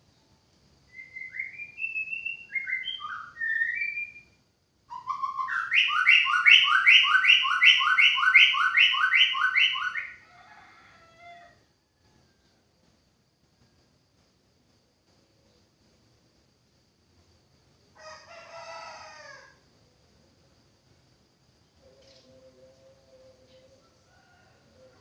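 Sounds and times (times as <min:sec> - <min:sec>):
songbird whistling song: 0:00.9 - 0:10.2, 0:21.8 - 0:24.0.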